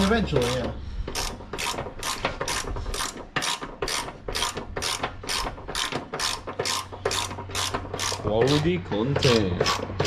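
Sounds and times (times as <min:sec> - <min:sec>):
ratchet wrench clicking: 0:00.4 - 0:08.6.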